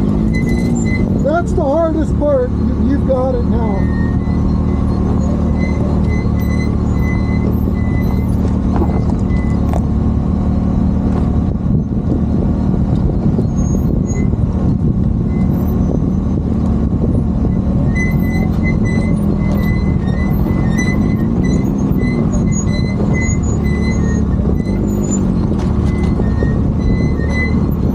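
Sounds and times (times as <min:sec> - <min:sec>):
high-pitched squeaks: 0:00.0 - 0:09.9, 0:17.5 - 0:27.9
vehicle engine droning: 0:00.0 - 0:27.9.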